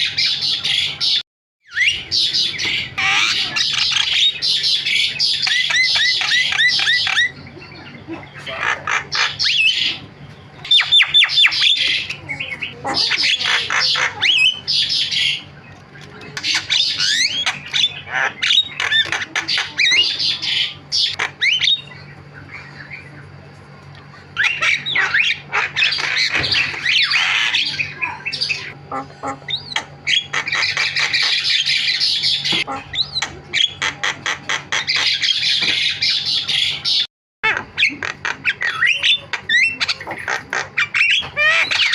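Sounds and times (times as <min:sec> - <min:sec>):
myna chattering song: 0:06.2 - 0:31.3.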